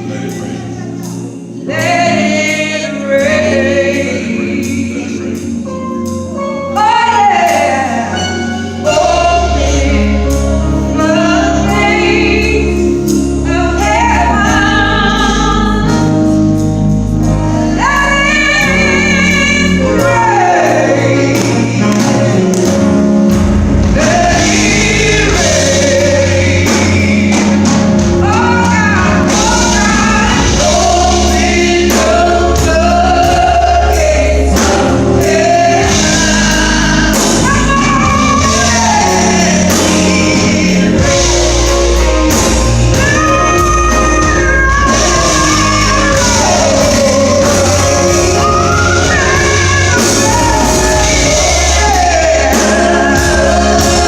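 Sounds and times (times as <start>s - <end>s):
bass and band accompaniment: 0.0s - 54.0s
voices singing gospel: 0.0s - 54.0s.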